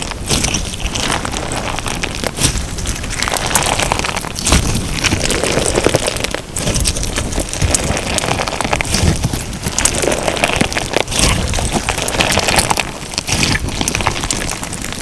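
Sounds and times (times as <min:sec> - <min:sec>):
crunchy slime crackling and popping: 0:00.0 - 0:15.0.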